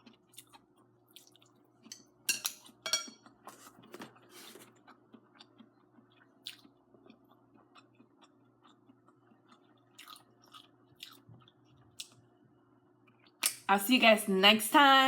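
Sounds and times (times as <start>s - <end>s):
wet chewing sounds: 0.0s - 2.0s, 4.2s - 12.2s
utensil clinking against dish: 1.9s - 3.2s.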